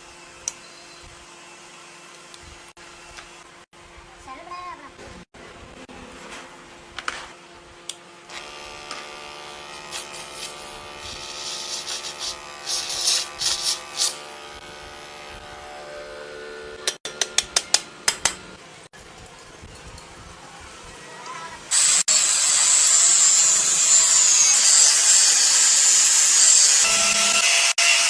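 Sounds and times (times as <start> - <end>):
short hissing bursts: 9.9 - 14.2.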